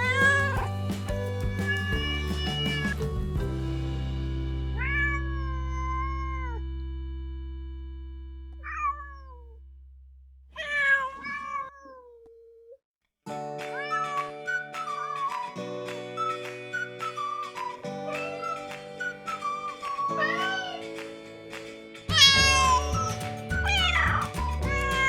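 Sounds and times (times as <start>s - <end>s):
cat meowing: 0.0s - 0.7s, 1.4s - 3.0s, 4.8s - 6.6s, 8.6s - 9.6s, 10.6s - 12.4s, 13.8s - 14.4s, 20.1s - 20.8s, 22.1s - 25.0s
held music chord: 2.2s - 8.6s.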